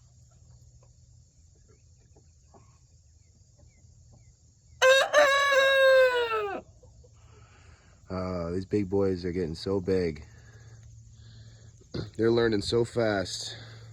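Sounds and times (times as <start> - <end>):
rooster crowing: 4.8 - 6.7.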